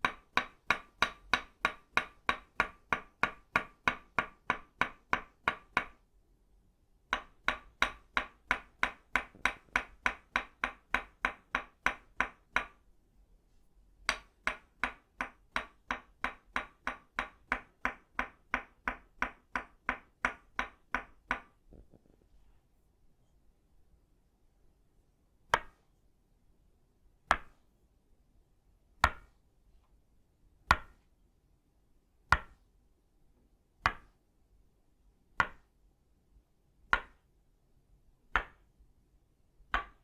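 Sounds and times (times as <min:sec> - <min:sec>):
wooden mallet tapping wooden stake: 0:00.0 - 0:06.0, 0:07.1 - 0:12.8, 0:14.1 - 0:21.9, 0:30.7 - 0:31.0, 0:32.3 - 0:32.6, 0:33.9 - 0:34.1, 0:35.4 - 0:35.6, 0:36.9 - 0:37.2, 0:38.4 - 0:38.6, 0:39.7 - 0:40.0.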